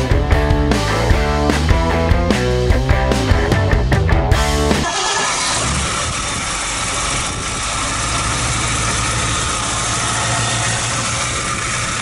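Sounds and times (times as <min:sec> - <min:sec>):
car engine idling: 0:04.4 - 0:12.0.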